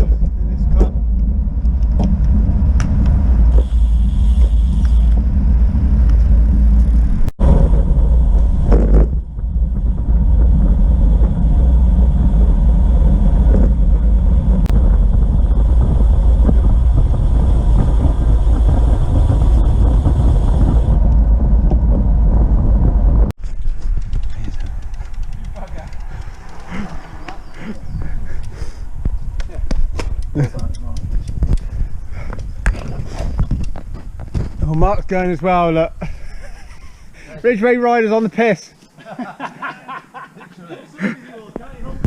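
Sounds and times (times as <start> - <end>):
wind buffeting microphone: 0.0 - 37.1.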